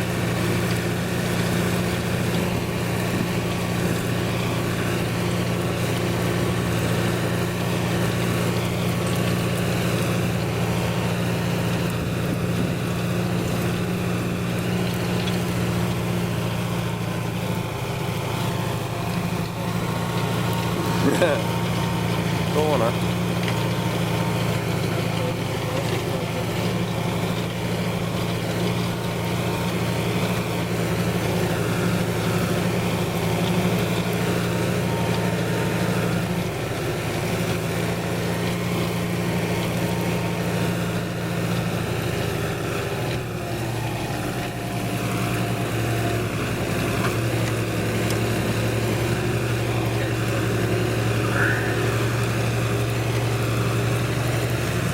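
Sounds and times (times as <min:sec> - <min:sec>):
tractor diesel engine under load: 0:00.0 - 0:54.9.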